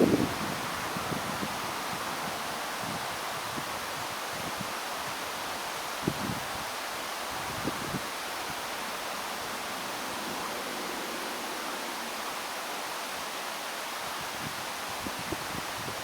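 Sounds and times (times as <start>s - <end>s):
strong wind rushing: 0.0s - 4.6s
wind gusts thumping microphone: 0.0s - 4.8s.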